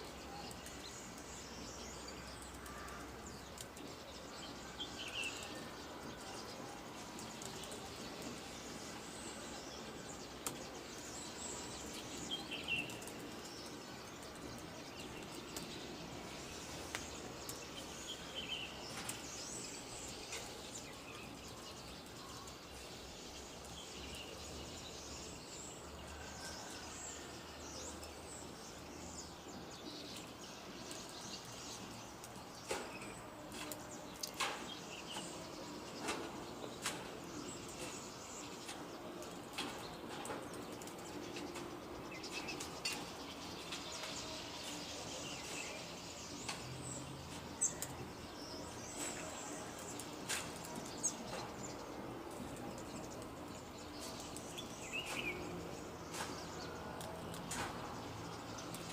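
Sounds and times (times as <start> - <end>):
outdoor background noise: 0.0 - 58.9
bird chirps: 52.6 - 58.9.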